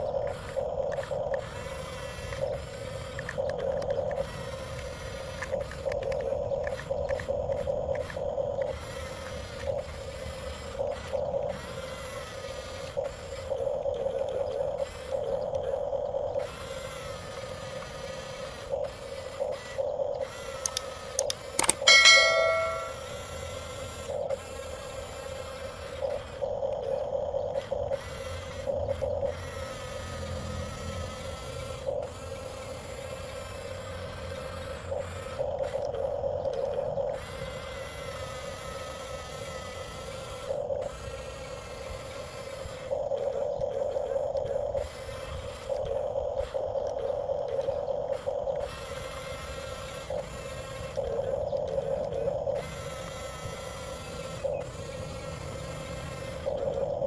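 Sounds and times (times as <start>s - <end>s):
electric motors whining: 0.0s - 57.0s
sharp clicks: 2.2s - 8.7s, 20.5s - 23.1s.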